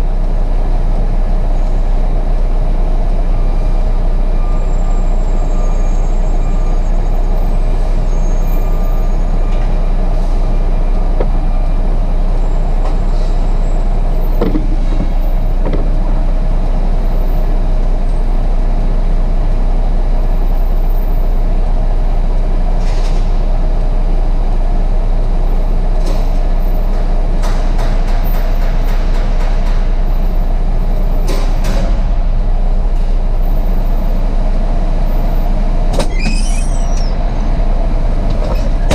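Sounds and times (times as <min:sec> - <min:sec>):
diesel truck engine rumbling: 0:00.0 - 0:38.9
short squeaks: 0:35.9 - 0:37.3.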